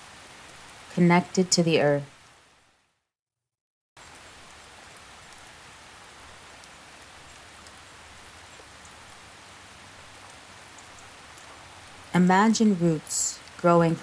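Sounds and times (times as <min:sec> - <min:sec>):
steady rainfall: 0:00.0 - 0:02.9, 0:04.0 - 0:14.0.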